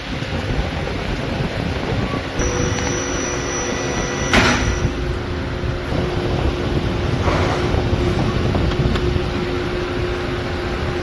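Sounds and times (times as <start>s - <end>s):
car engine rumbling: 0.8s - 11.0s
short sharp noise: 2.4s - 5.0s.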